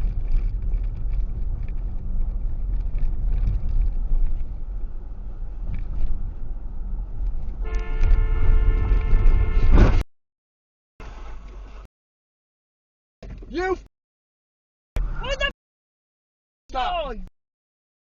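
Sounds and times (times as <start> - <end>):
vehicle rumble in motion: 0.0 - 10.0, 11.0 - 11.9
car horn held: 7.6 - 10.0.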